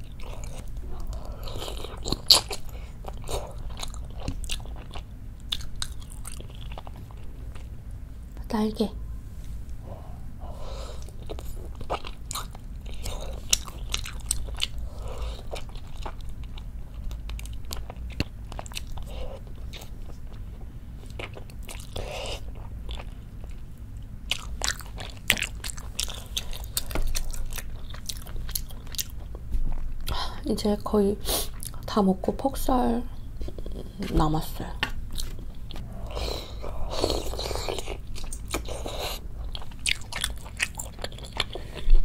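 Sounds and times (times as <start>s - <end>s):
person chewing chicken wing: 0.0s - 7.7s, 11.0s - 23.7s, 24.3s - 30.1s, 35.1s - 41.9s.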